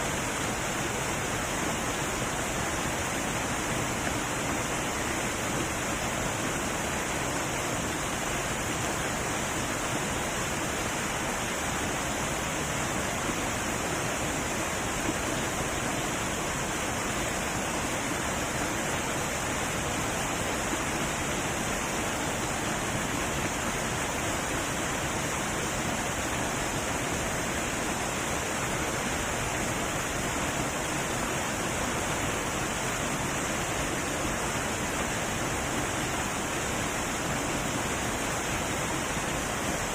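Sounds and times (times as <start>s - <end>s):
heavy waterfall pouring: 0.0s - 39.9s.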